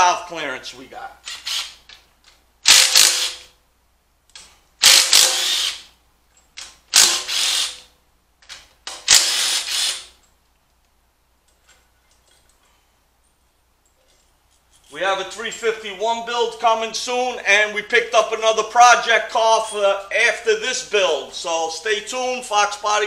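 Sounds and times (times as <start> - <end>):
power tool running out bolts: 2.7 - 3.5, 4.8 - 5.9.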